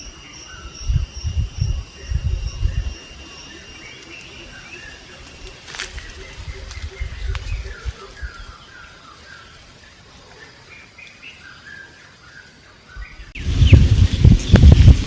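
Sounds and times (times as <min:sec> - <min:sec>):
bird singing whistled notes: 0:00.0 - 0:09.6
wind rumble on microphone: 0:00.5 - 0:03.3, 0:06.0 - 0:08.6, 0:13.0 - 0:15.0.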